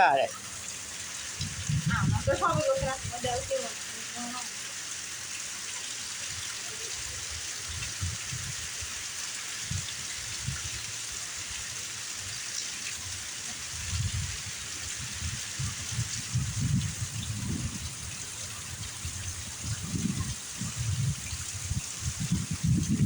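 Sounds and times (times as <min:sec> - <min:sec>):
heavy rain hissing: 0:00.0 - 0:23.0
wind bumps on microphone: 0:01.4 - 0:03.5, 0:07.6 - 0:08.7, 0:09.6 - 0:10.8, 0:13.7 - 0:23.0.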